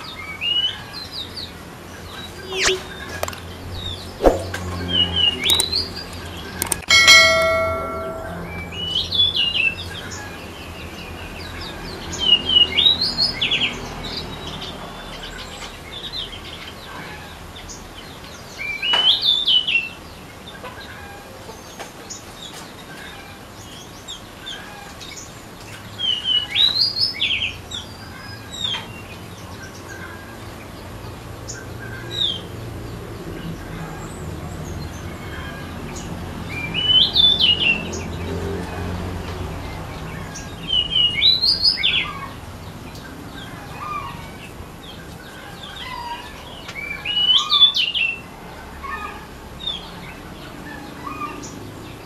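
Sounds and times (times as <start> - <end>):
birds chirping: 0.0 - 20.7
bell-like ding: 6.9 - 8.8.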